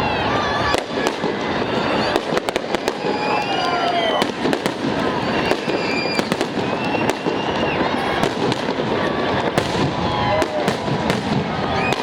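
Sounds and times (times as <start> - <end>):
firework bangs and crackles: 0.0 - 12.0
firework whistles: 0.6 - 12.0.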